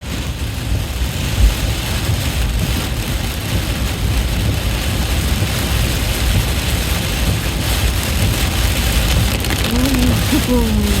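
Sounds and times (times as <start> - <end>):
heavy rain on a car: 0.0 - 11.0
road and engine rumble: 0.0 - 11.0.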